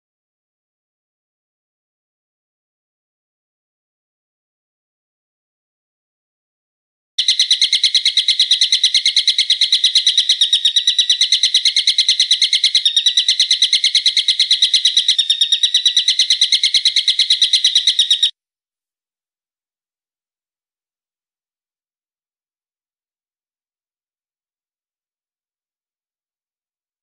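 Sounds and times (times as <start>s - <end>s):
songbird call: 7.2s - 18.3s.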